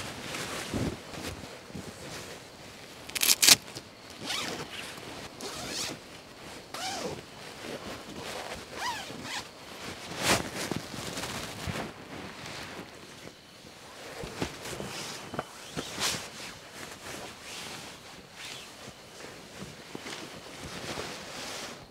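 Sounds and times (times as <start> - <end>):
zipper being pulled: 3.1 - 3.6.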